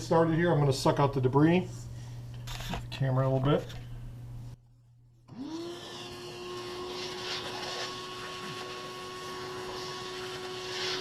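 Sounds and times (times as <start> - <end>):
shop vacuum running: 5.3 - 11.0.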